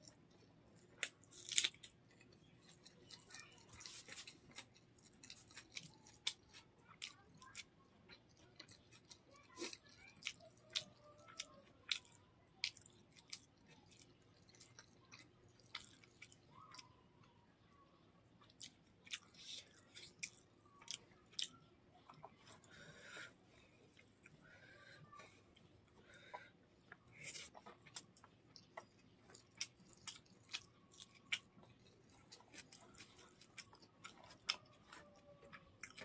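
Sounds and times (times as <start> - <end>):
chewing with wet mouth clicks: 0.0 - 17.3, 18.4 - 22.8, 25.5 - 36.0.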